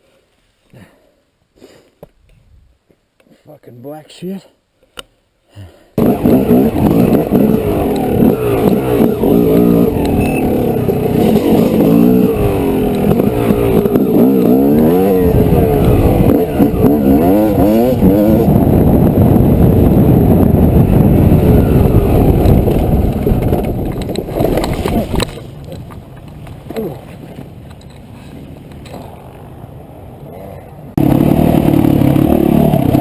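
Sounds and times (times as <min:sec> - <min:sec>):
dirt bike engine revving: 0:06.0 - 0:25.4, 0:30.8 - 0:33.0.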